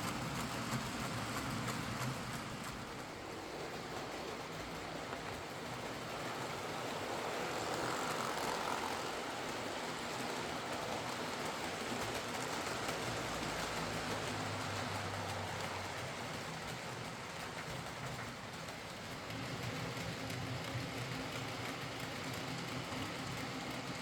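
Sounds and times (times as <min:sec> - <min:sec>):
model locomotive motor whirring: 0:00.0 - 0:24.0
wheels rumbling on rails: 0:00.0 - 0:24.0.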